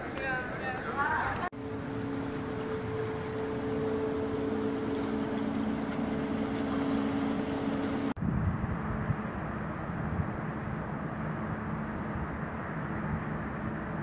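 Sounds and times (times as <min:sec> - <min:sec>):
ship engines humming: 0:00.0 - 0:08.2
water noise: 0:00.0 - 0:14.0
wind buffeting microphone: 0:00.0 - 0:14.0.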